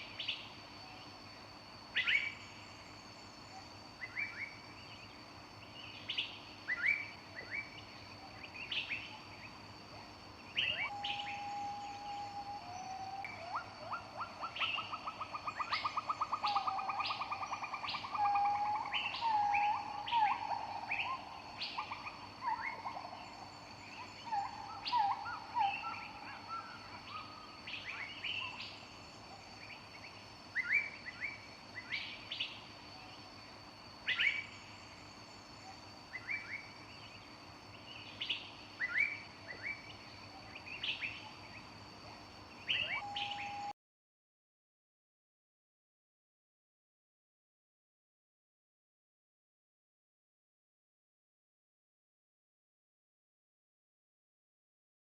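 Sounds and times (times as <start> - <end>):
wild birds chirping: 0.0 - 43.7.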